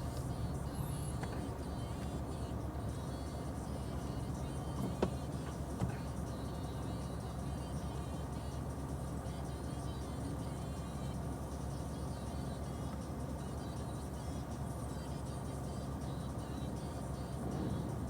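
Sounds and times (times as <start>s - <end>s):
car rumbling: 0.0s - 9.2s, 16.4s - 18.0s.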